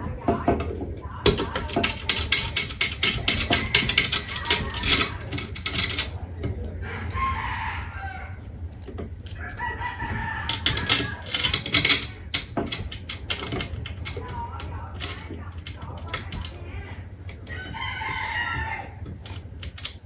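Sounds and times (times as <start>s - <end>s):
sharp clicks and knocks: 0.0s - 7.2s, 8.4s - 20.0s
rooster crowing: 6.8s - 8.7s, 9.4s - 11.4s, 17.4s - 19.4s.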